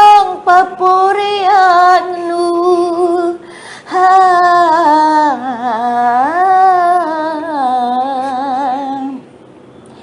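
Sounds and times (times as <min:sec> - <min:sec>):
woman singing with vibrato: 0:00.0 - 0:09.3.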